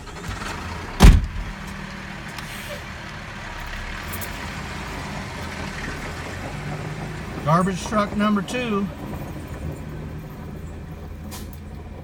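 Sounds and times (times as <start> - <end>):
diesel truck engine idling: 0.0 - 12.0
loud thump: 1.0 - 1.6.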